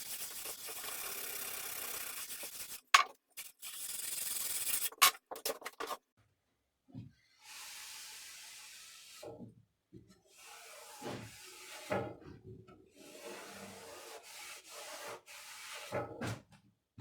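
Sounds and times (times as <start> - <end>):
hand tool scraping metal: 0.0 - 6.0.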